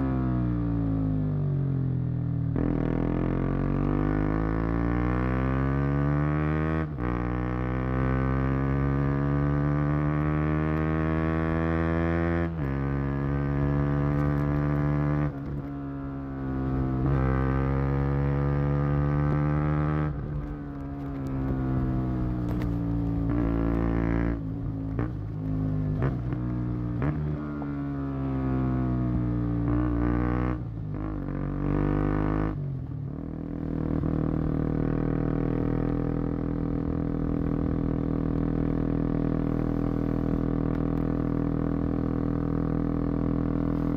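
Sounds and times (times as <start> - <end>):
motorcycle exhaust revving: 16.6 - 43.9.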